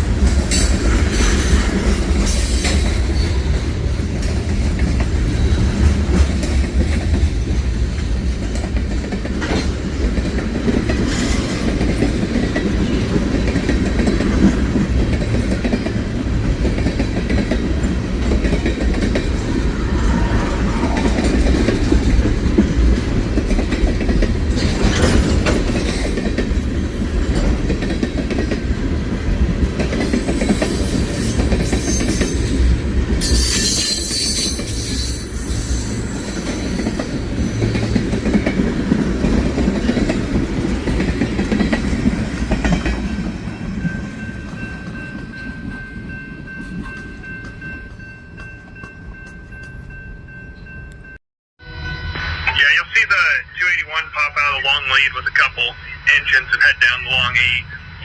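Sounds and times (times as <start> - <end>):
freight train rumble: 0.0 - 47.8, 48.4 - 58.0
high-pitched wheel squeal: 33.2 - 36.2.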